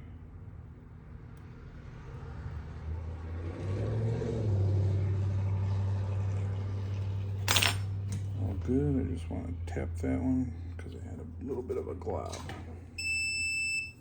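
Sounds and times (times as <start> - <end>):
low steady rumble: 4.8 - 14.0.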